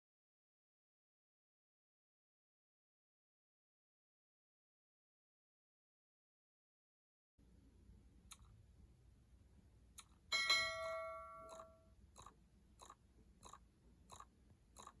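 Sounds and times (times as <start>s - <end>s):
light evenly spaced ticks: 8.2s - 8.6s, 9.9s - 10.8s, 11.4s - 15.0s
ringing metallic clang: 10.3s - 11.8s.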